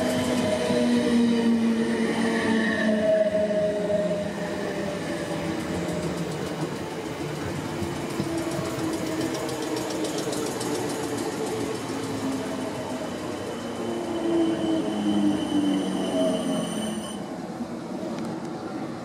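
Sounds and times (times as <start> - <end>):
electric train rumbling past: 0.0 - 19.0
high wheel squeal: 12.8 - 17.3.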